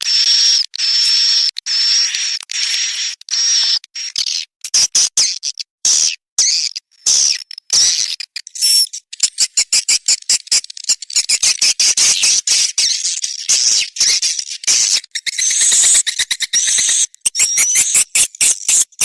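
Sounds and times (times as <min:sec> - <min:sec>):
squealing bird trill: 0:15.3 - 0:19.0.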